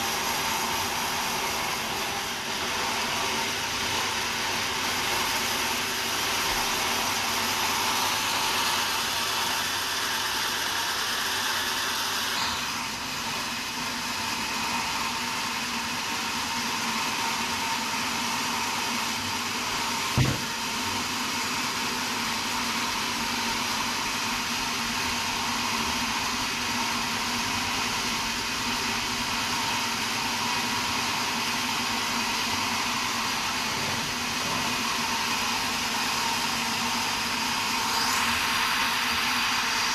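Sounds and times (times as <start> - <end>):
sawmill saw running: 0.0 - 39.9
sharp knock: 20.2 - 20.6.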